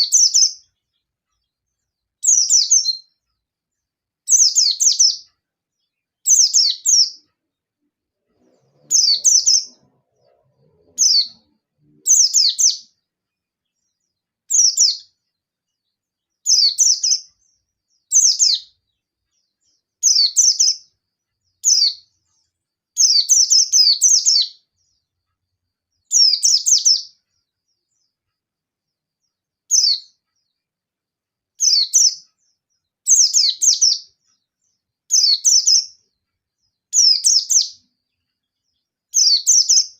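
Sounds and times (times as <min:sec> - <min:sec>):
bird chirping rapidly: 0:00.0 - 0:01.6, 0:02.2 - 0:03.2, 0:04.2 - 0:07.3, 0:08.3 - 0:15.2, 0:16.3 - 0:22.2, 0:23.0 - 0:25.0, 0:26.0 - 0:27.2, 0:29.7 - 0:30.6, 0:31.6 - 0:34.5, 0:35.1 - 0:36.0, 0:36.8 - 0:39.9.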